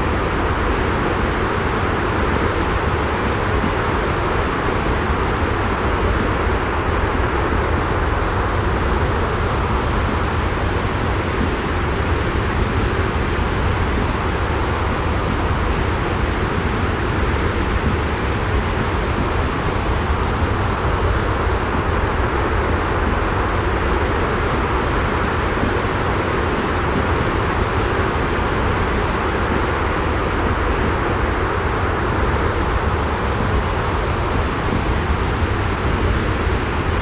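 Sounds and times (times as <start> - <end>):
rushing white noise: 0.0 - 37.0.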